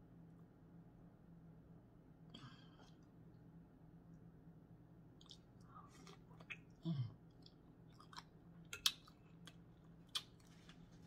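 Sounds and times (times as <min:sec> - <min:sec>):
person chewing and smacking: 0:05.1 - 0:11.0.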